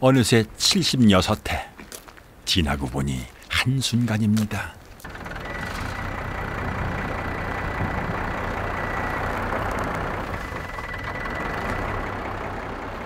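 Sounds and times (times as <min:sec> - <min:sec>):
engine running hum: 0:05.0 - 0:13.0
faint high whine: 0:05.1 - 0:12.2.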